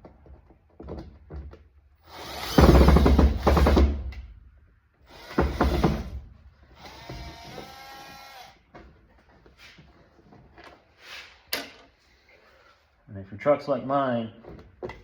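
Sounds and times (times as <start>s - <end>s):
power drill whining: 2.0s - 3.9s, 5.0s - 8.6s.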